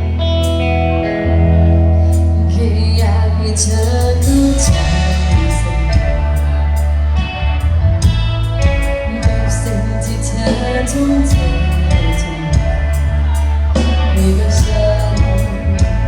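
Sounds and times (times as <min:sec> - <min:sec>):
loud steady bass: 0:00.0 - 0:16.0
woman singing: 0:02.4 - 0:06.6, 0:08.6 - 0:16.0
drum beats: 0:04.3 - 0:06.7, 0:08.0 - 0:09.8.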